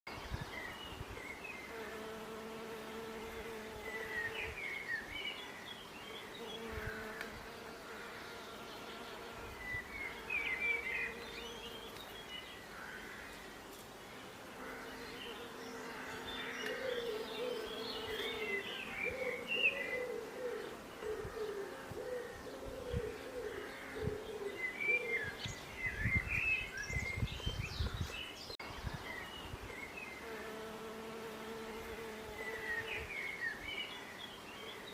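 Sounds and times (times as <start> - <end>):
birds chirping: 0.1 - 34.9
bees buzzing: 1.7 - 4.6, 14.1 - 21.0, 30.2 - 33.1.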